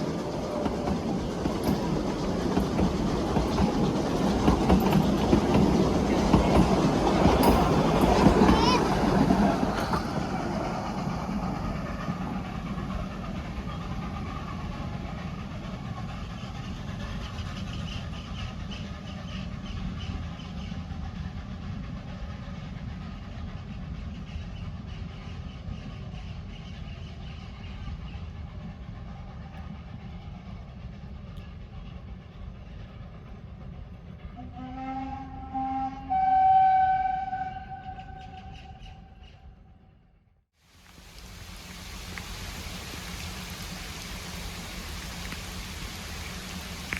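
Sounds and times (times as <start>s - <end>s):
steam train rumbling: 0.0s - 39.8s, 40.6s - 46.9s
steam whistle blasts: 34.4s - 39.1s.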